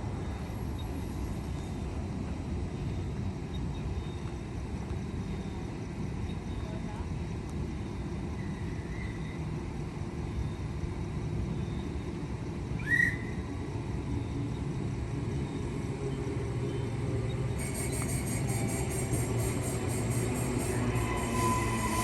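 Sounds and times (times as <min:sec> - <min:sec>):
electric train rumbling: 0:00.0 - 0:22.0
whistle-like squeal: 0:17.6 - 0:22.0.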